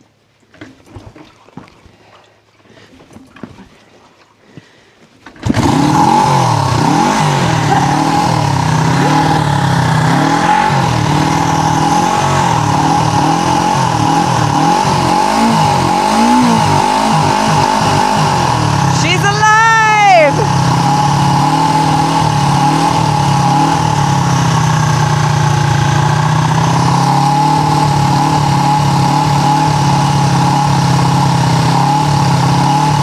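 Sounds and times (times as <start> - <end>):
motorcycle engine running: 5.3 - 33.0.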